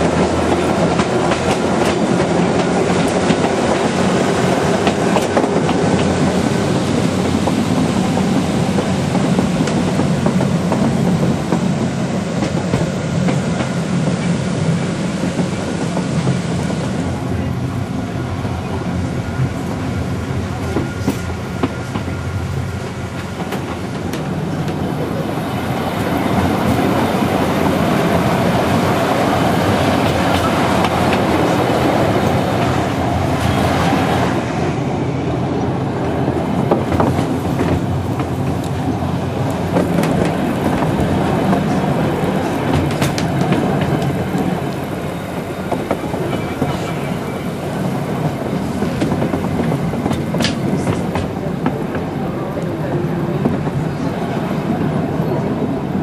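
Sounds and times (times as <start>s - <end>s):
track clicks and clacks: 0.0s - 14.3s, 22.8s - 25.3s, 26.0s - 34.4s, 36.1s - 54.3s
train wheels rumbling: 0.0s - 56.0s.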